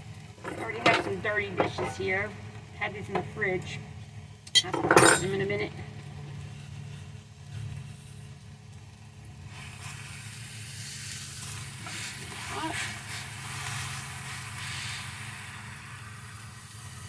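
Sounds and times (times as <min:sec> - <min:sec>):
steady low hum: 0:00.0 - 0:16.8
food sizzling in a frying pan: 0:06.2 - 0:17.0.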